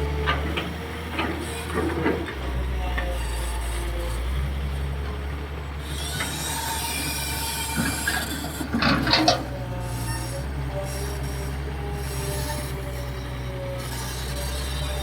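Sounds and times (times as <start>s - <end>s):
excavator diesel engine: 0.0s - 15.0s
metallic squealing and creaking: 5.8s - 15.0s.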